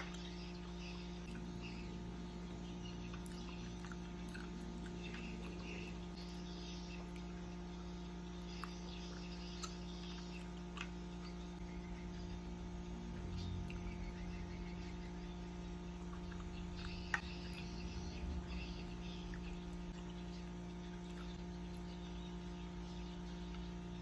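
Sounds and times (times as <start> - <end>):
steady electrical hum: 0.0 - 24.0
wet chewing mouth sounds: 3.1 - 6.1.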